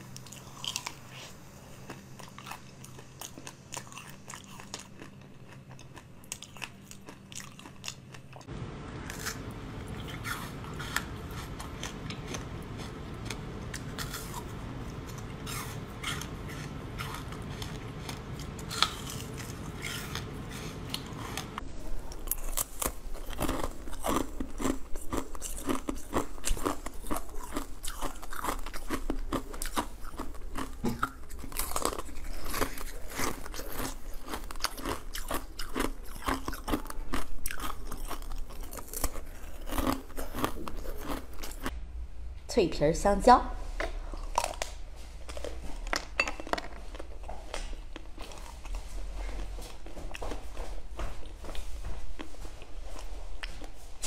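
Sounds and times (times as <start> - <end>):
crunching jelly with beads: 0.0 - 8.5, 9.1 - 41.8, 44.0 - 50.4
steady low hum: 0.0 - 54.0
crunching frozen cubes: 15.4 - 21.5, 22.2 - 41.7.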